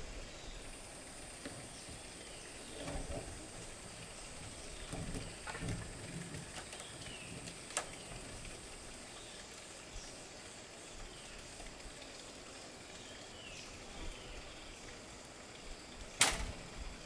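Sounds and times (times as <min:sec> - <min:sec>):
high insect drone: 0:00.0 - 0:17.0
sharp click: 0:16.2 - 0:16.5.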